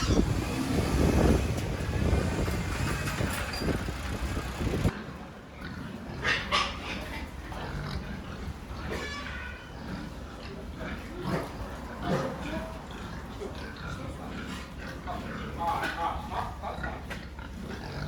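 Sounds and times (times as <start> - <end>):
pigs grunting and squealing: 0.0 - 3.7, 4.9 - 18.0
low rumbling noise: 0.0 - 5.3.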